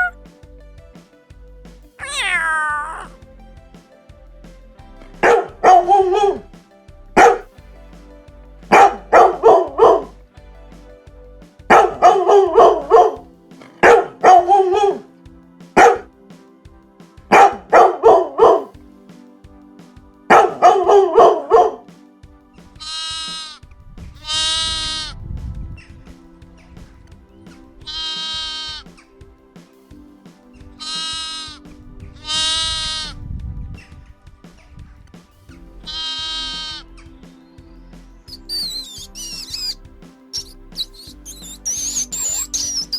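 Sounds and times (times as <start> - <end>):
dog barking: 7.2 - 7.4, 13.8 - 15.0, 15.8 - 16.0
drawn-out bleats: 35.9 - 36.8.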